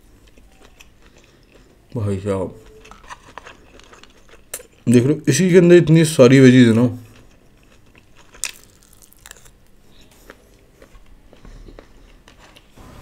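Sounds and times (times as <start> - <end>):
man chewing food: 0.0 - 4.9, 7.0 - 12.8.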